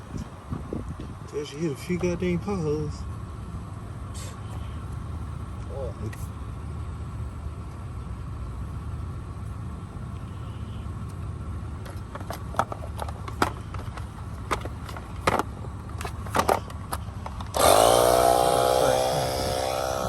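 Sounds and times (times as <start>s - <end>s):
vehicle rumbling: 0.0s - 20.0s
sharp knocks and rattles: 11.8s - 17.7s.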